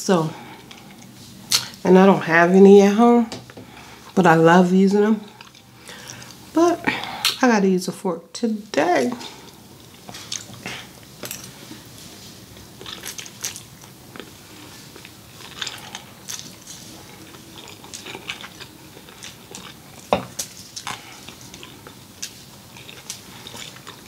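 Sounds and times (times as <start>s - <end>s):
wet chewing and lip smacks: 9.2s - 10.9s, 12.6s - 24.0s.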